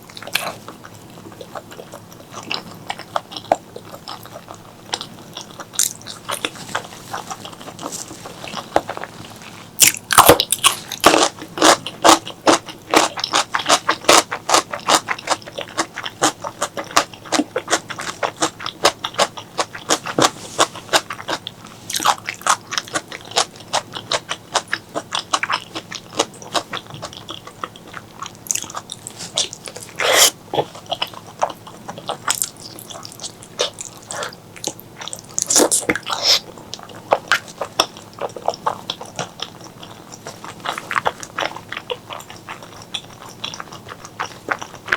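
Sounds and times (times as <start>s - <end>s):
chewing and mouth sounds: 0.0s - 44.9s
bites or slurps: 28.5s - 34.8s.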